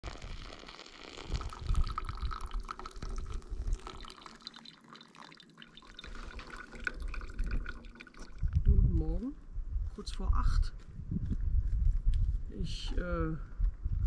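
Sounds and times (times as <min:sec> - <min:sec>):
liquid pouring and dripping: 0:00.0 - 0:08.7.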